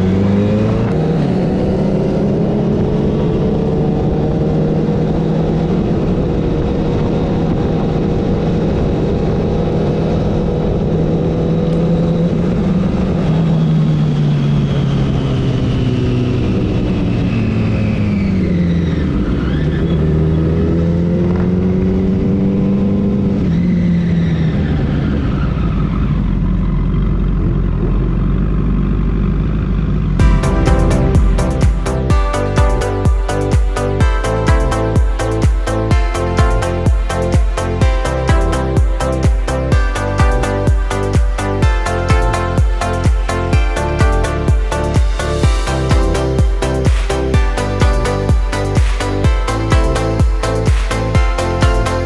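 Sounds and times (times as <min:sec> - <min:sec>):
motorcycle engine running: 0:26.2 - 0:52.0
steady rushing noise: 0:30.2 - 0:52.0.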